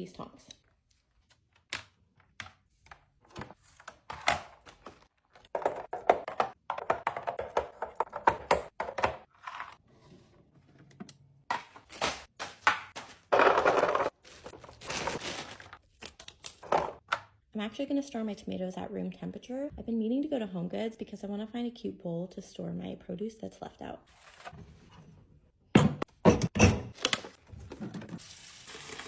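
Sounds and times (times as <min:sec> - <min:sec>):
plastic containers clicking and knocking: 0:03.3 - 0:09.3
packaging rustling and clattering: 0:11.7 - 0:17.0.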